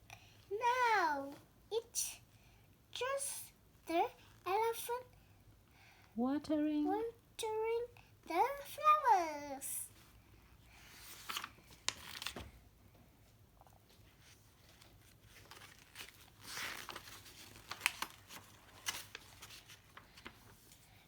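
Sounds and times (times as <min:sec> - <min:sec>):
book pages rustling: 0:10.8 - 0:12.6, 0:13.8 - 0:21.0
small clicks of pages: 0:11.1 - 0:12.5, 0:14.6 - 0:20.8.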